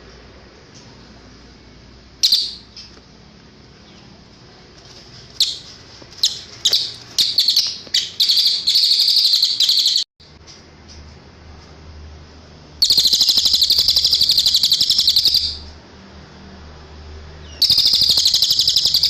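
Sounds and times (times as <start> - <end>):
songbird high sharp calls and trill: 2.2 - 3.0, 5.4 - 10.1, 12.8 - 15.7, 17.4 - 19.0.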